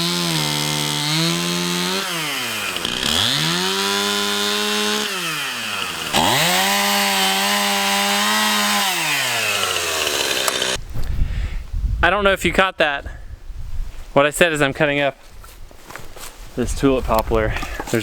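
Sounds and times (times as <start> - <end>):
chainsaw engine revving: 0.0 - 10.8.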